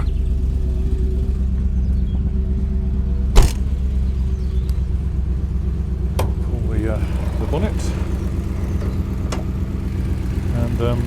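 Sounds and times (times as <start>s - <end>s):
car engine idling: 0.0s - 11.0s
car door shutting: 3.4s - 3.8s.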